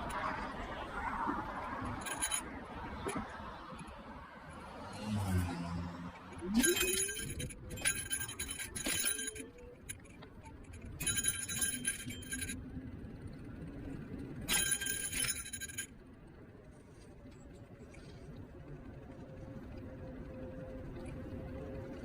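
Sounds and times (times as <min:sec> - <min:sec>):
hub motor hum: 0:00.0 - 0:22.0
metallic jangling rattle: 0:01.8 - 0:03.2, 0:06.3 - 0:12.6, 0:14.4 - 0:15.9.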